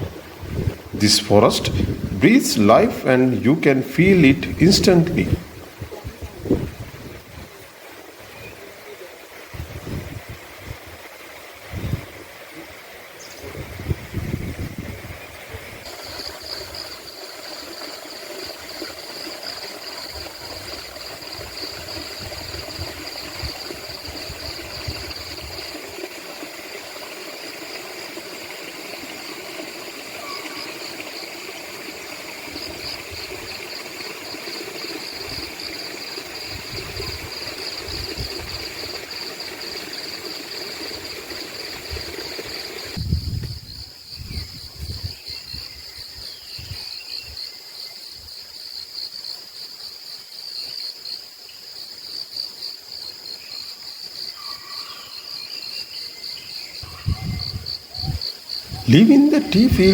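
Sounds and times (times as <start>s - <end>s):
wind gusts on microphone: 0.0s - 2.9s, 4.2s - 7.7s, 9.5s - 12.4s, 13.3s - 15.9s, 36.4s - 38.8s, 42.8s - 46.8s, 56.8s - 59.0s
running water rushing: 0.0s - 43.0s
insects trilling: 4.9s - 59.9s.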